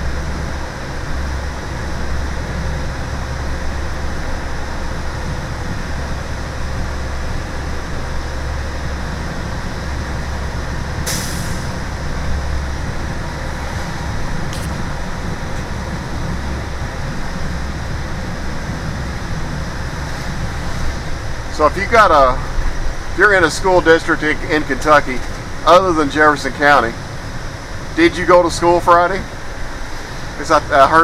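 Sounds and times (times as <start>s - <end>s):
bus engine and road rumble: 0.0s - 31.0s
short hiss: 11.1s - 11.7s.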